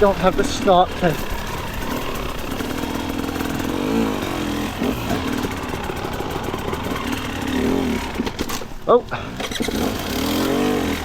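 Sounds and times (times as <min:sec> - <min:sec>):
two-stroke dirt bike engine: 0:00.0 - 0:11.0.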